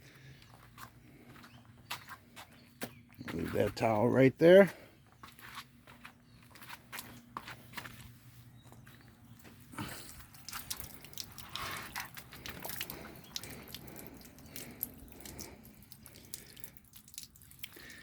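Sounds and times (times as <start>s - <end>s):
water dripping: 9.8s - 18.0s.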